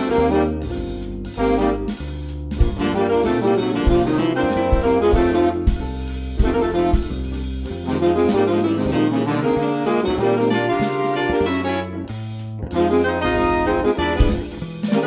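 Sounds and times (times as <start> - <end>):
sharp drum strikes: 0.0 - 9.4, 14.0 - 15.0
jazz brass and saxophone: 0.0 - 15.0.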